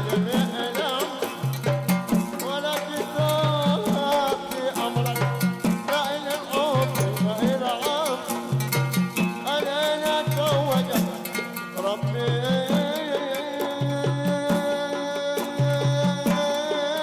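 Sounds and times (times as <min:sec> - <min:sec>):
busy percussion beat: 0:00.0 - 0:17.0
ornamented band melody: 0:00.0 - 0:17.0.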